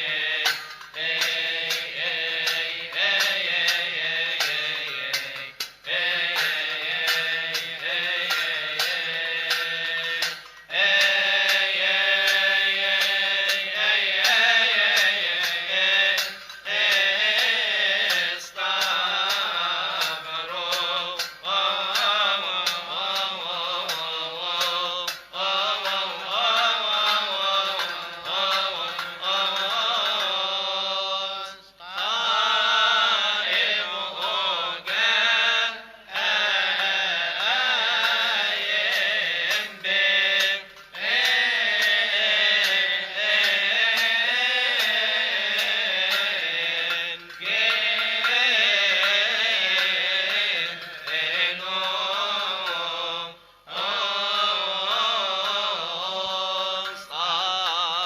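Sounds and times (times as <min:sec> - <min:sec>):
man chanting a hymn: 0:00.0 - 0:58.0.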